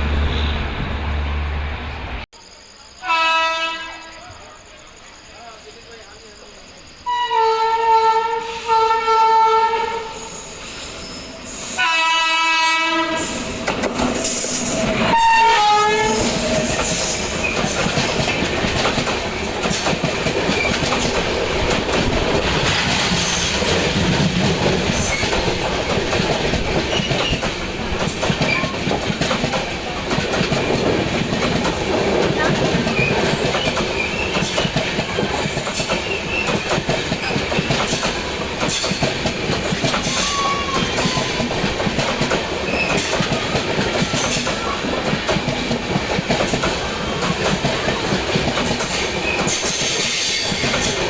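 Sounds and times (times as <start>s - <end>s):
electric locomotive horn: 3.0s - 4.2s, 7.1s - 10.3s, 11.8s - 13.4s, 15.0s - 16.5s
train wheels clattering over rail joints: 13.2s - 51.0s.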